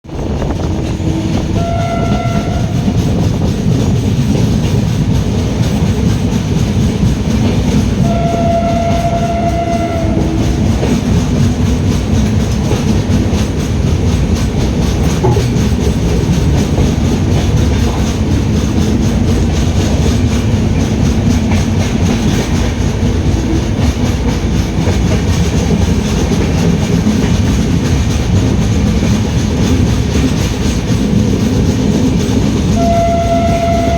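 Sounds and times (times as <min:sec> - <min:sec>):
train rumbling along track: 0:00.0 - 0:33.9
train horn: 0:00.6 - 0:03.2, 0:08.0 - 0:11.1, 0:32.7 - 0:33.9.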